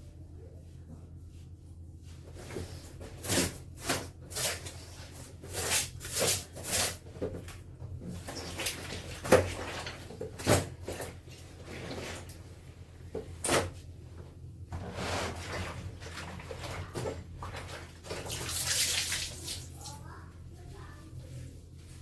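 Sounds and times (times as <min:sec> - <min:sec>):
clothes swishing during scrubbing: 0:14.8 - 0:20.0.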